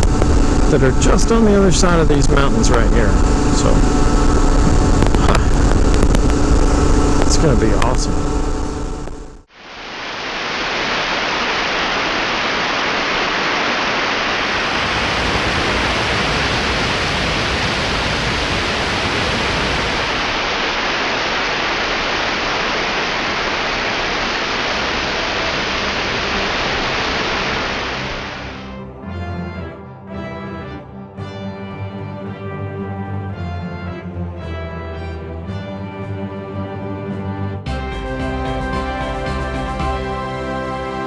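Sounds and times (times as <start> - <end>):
loud rushing noise: 0.0 - 28.8
music: 27.0 - 41.0.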